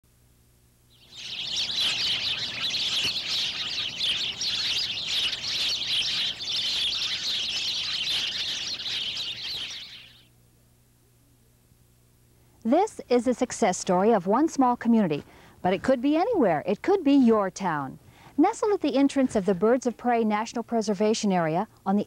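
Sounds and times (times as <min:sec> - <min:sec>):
birds chirping and twittering: 0:00.9 - 0:10.3.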